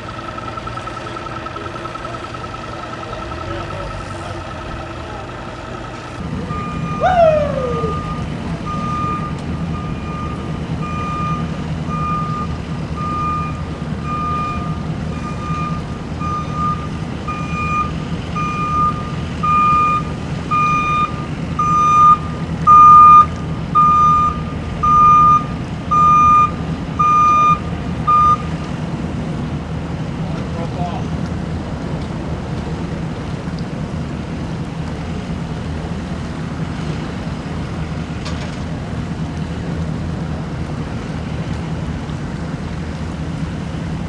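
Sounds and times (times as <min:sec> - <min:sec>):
vehicle backup alarm beeping: 0:00.0 - 0:31.2
low engine hum: 0:00.0 - 0:44.0
short falling squeal: 0:06.6 - 0:09.3.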